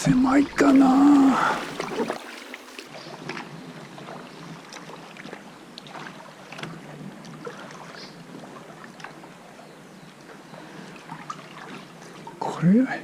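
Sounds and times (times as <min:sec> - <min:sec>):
water lapping against a kayak: 0:00.6 - 0:12.4
small sharp splashes and drips: 0:00.7 - 0:02.9.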